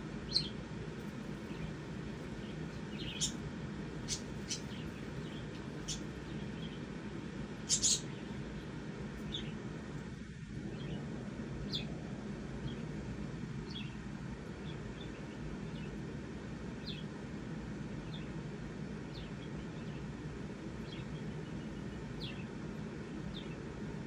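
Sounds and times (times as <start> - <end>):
low background hum: 0.0 - 24.0
high bird chirps: 2.4 - 3.4, 4.0 - 6.8, 7.6 - 8.3.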